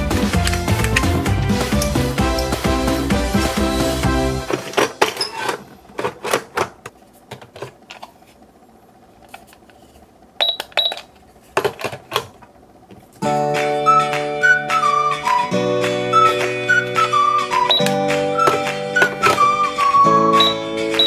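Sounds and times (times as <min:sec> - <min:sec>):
short electronic beeps: 0:17.7 - 0:18.0, 0:20.3 - 0:21.0.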